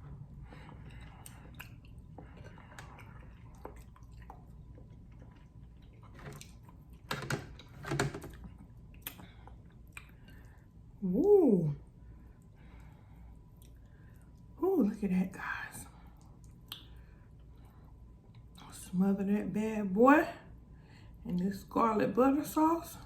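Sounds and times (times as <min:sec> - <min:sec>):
person chewing: 0:00.6 - 0:07.1, 0:08.4 - 0:10.6.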